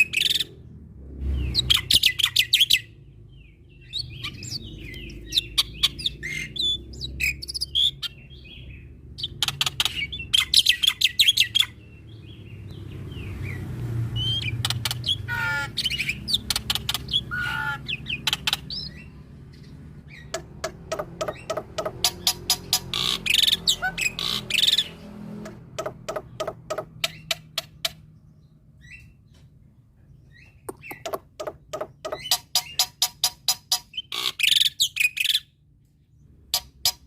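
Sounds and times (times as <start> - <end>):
myna singing whistles and clicks: 30.4 - 32.4.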